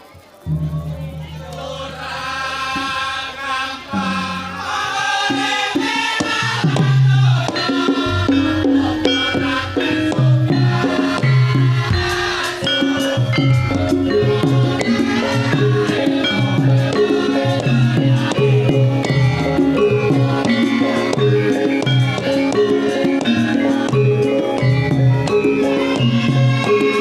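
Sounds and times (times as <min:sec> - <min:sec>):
pitched percussion: 0:00.0 - 0:27.0
drum beating: 0:00.4 - 0:27.0
person singing long notes: 0:00.5 - 0:27.0.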